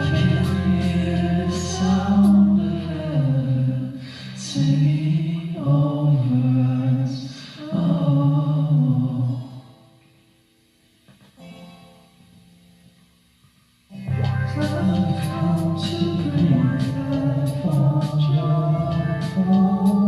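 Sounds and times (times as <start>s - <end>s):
low held tone: 0.0s - 4.6s, 13.9s - 20.0s
voices singing worship song: 0.0s - 9.9s, 14.1s - 20.0s.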